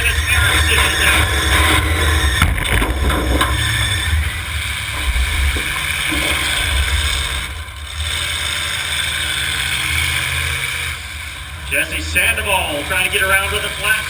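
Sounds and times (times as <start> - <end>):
car engines rumbling: 0.0 - 14.0
knocks: 0.6 - 4.1, 4.8 - 7.6.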